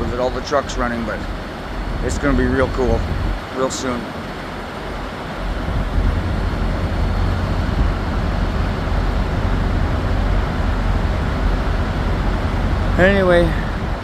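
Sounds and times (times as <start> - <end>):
diesel truck engines idling: 0.0 - 14.0.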